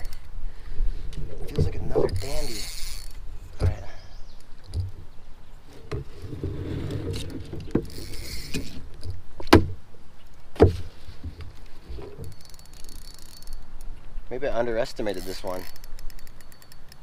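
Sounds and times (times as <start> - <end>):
low rumbling and rubbing: 5.0 - 9.0.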